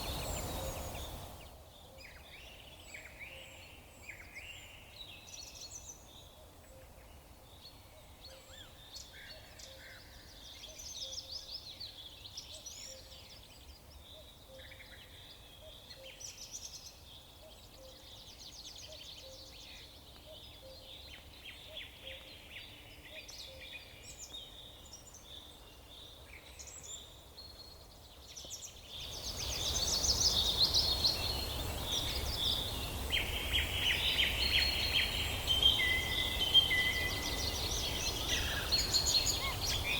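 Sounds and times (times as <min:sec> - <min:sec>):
songbirds chirping and trilling: 0:00.0 - 0:39.9
steady background hiss: 0:00.0 - 0:39.9.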